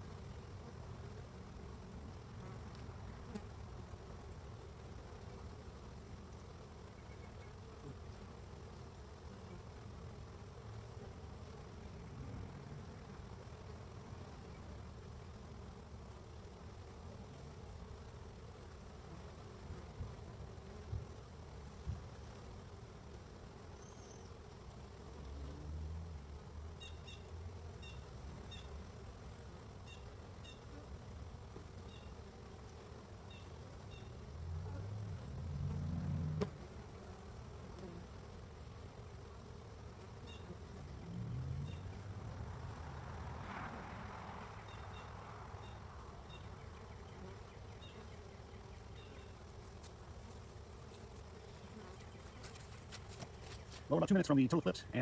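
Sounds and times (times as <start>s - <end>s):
honeybees humming at hive: 0.0s - 55.0s.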